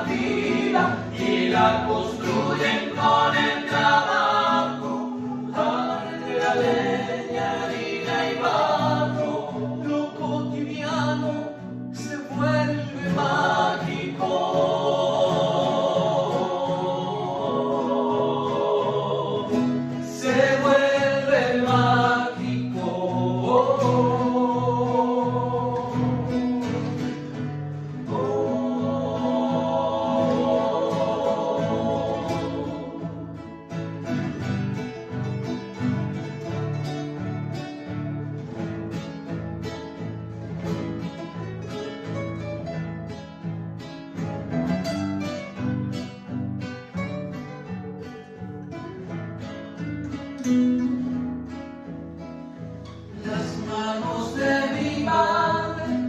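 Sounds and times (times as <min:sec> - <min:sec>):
voices singing long notes: 0:00.0 - 0:11.4, 0:12.9 - 0:27.4, 0:28.0 - 0:33.9
acoustic guitar: 0:00.0 - 0:56.0.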